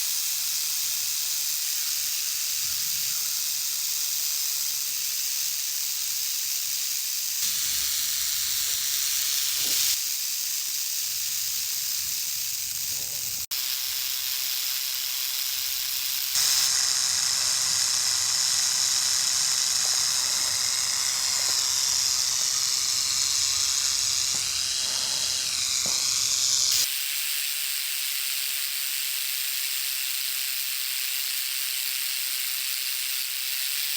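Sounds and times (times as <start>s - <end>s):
rattlesnake rattling: 0.0s - 26.9s.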